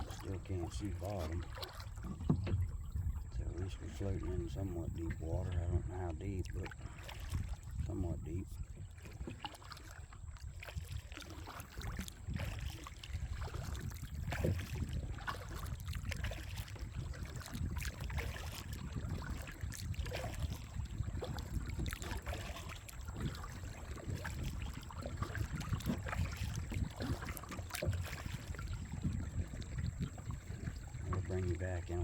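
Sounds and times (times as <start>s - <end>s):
paddle splashing in water: 0.0s - 32.0s
steady low rumble: 2.6s - 6.8s.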